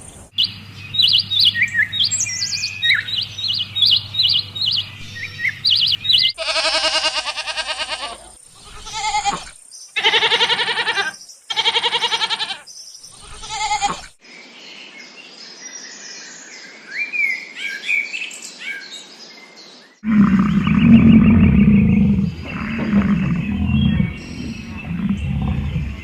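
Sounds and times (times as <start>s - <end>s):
small birds chirping: 0.0s - 6.8s, 8.4s - 26.0s
goat or sheep bleating: 6.4s - 12.6s, 13.3s - 14.1s
deep rough animal roar: 20.0s - 26.0s.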